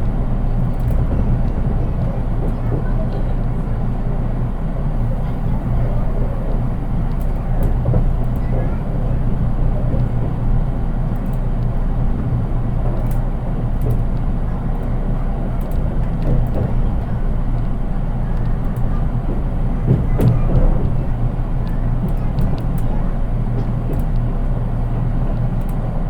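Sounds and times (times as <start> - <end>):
train clatter: 0.0 - 26.0
train wheels rumbling on rail: 0.0 - 26.0
light clicks: 12.9 - 14.9, 25.4 - 25.8.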